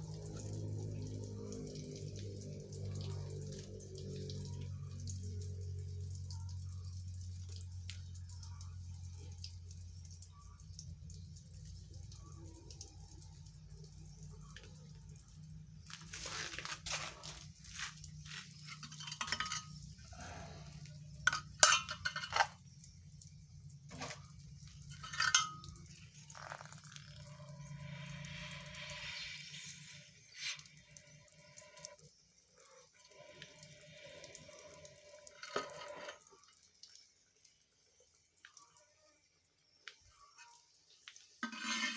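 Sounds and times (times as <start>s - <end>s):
water dripping in a sink: 0.0s - 41.6s
kitchenware clinking: 18.6s - 19.9s, 21.3s - 22.6s, 23.9s - 27.0s.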